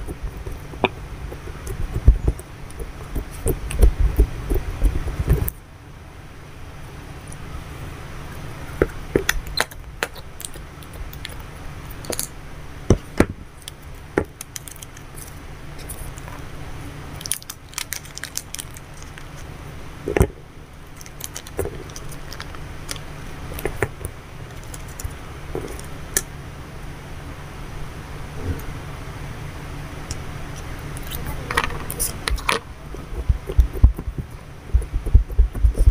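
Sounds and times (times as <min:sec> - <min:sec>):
steady low hum: 0:00.0 - 0:35.9
plastic packaging crinkling: 0:13.6 - 0:16.3, 0:17.2 - 0:19.5, 0:20.9 - 0:23.8.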